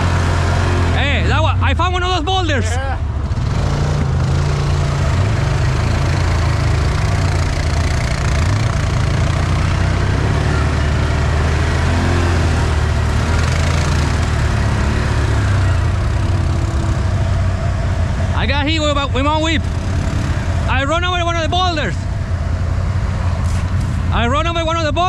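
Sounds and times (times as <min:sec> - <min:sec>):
engine running at low revs: 0:00.0 - 0:25.0.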